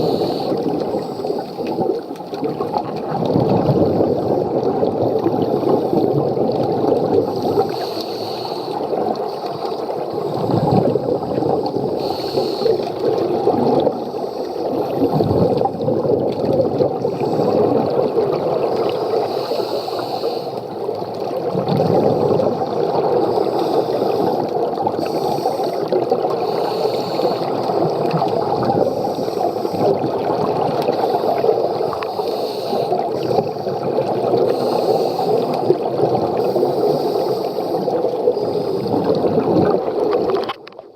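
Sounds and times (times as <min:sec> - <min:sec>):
regulator hiss: 0:00.0 - 0:01.6, 0:07.5 - 0:08.8, 0:11.8 - 0:12.9, 0:19.0 - 0:20.7, 0:26.4 - 0:27.7, 0:31.0 - 0:33.4
underwater breathing bubbles: 0:00.0 - 0:40.9.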